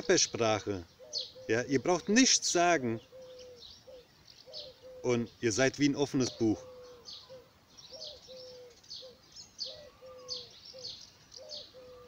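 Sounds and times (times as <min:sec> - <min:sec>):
dove cooing: 0:00.0 - 0:12.0
small birds chirping: 0:00.0 - 0:12.0.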